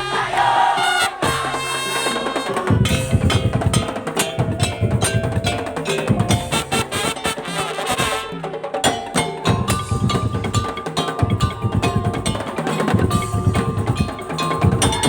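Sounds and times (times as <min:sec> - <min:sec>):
wooden slit drums: 0:00.0 - 0:15.0
heavy low drumming: 0:02.7 - 0:06.7.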